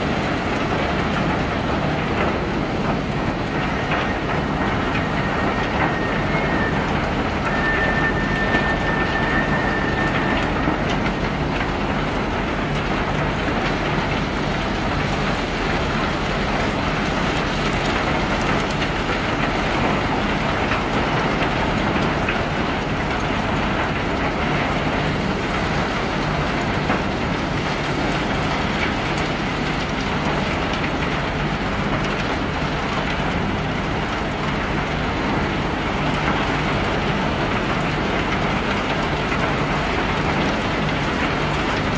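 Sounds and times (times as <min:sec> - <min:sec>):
conveyor machinery humming: 0:00.0 - 0:41.9
high squeal: 0:03.2 - 0:12.6.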